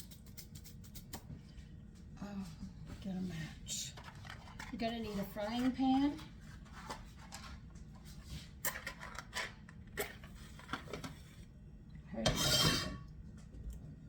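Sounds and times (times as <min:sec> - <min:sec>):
kitchen items clicking and scraping: 0:03.8 - 0:07.6, 0:08.5 - 0:11.4, 0:12.2 - 0:13.1.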